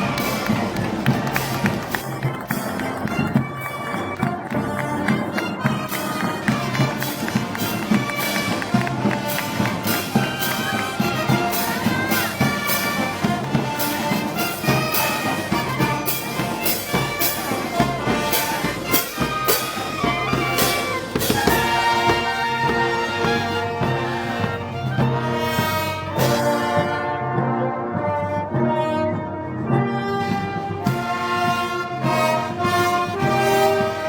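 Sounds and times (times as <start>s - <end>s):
steady drum beat: 0.0s - 27.2s
trumpets and trombones melody: 0.0s - 34.0s.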